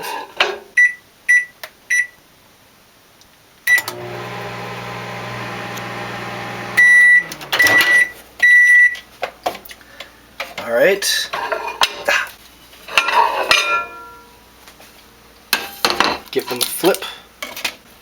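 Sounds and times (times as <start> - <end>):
microwave oven humming: 3.7 - 8.2
microwave keypad beeps: 6.7 - 9.0
long loud beeps: 6.8 - 8.9.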